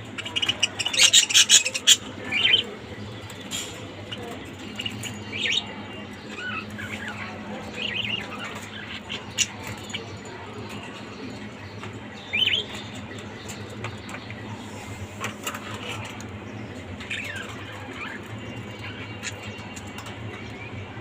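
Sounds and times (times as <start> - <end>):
parrots chirping: 0.2 - 2.7, 6.3 - 10.2, 12.2 - 13.1, 17.0 - 20.8.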